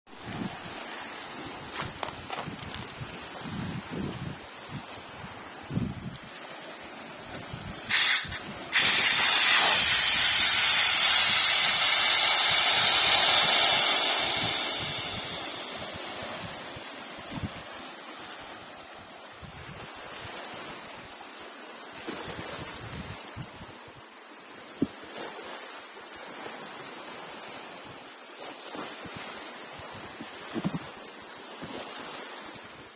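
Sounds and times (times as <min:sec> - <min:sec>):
hiss of rushing foam: 0:07.3 - 0:16.8
sea wave breaking: 0:07.3 - 0:17.2.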